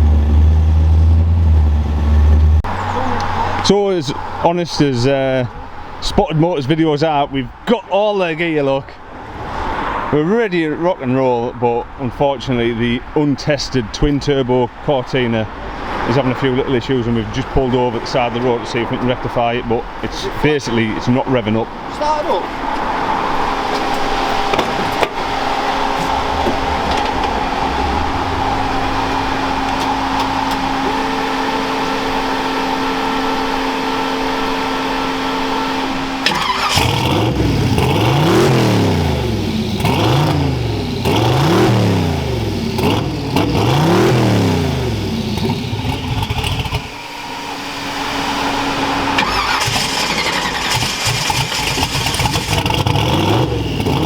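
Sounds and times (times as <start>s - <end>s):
car engine revving: 0.0s - 4.9s, 21.8s - 54.0s.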